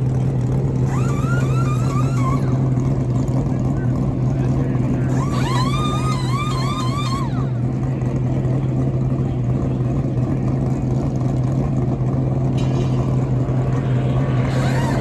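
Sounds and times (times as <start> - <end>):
race truck engines droning: 0.0 - 15.0
short high warbling sound: 0.9 - 2.9, 5.1 - 7.6, 12.6 - 15.0.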